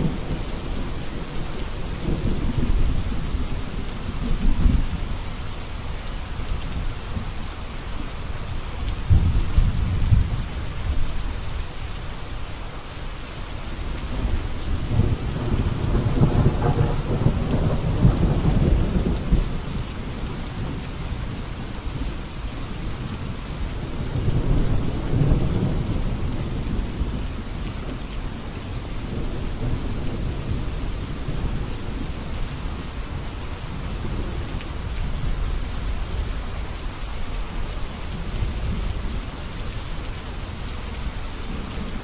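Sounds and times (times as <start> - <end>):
steady rain: 0.0 - 42.0
thunder rumbling: 9.1 - 11.1, 14.0 - 20.8.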